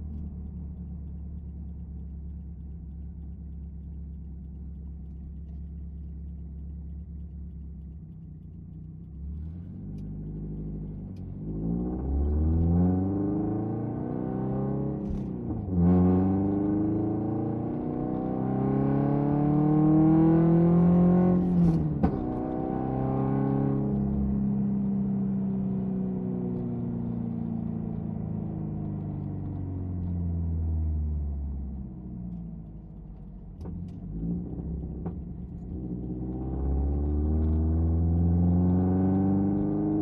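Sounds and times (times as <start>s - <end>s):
car engine revving from inside cabin: 9.4s - 28.6s, 33.1s - 40.0s.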